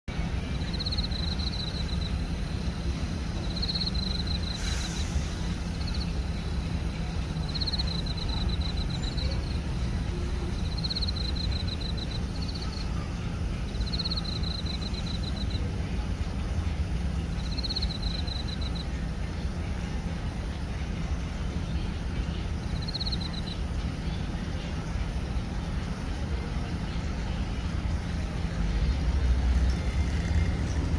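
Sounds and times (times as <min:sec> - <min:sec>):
steady low rumble: 0:00.1 - 0:30.9
crickets chirping: 0:00.4 - 0:19.4, 0:20.0 - 0:30.9
brief hiss: 0:04.5 - 0:05.8.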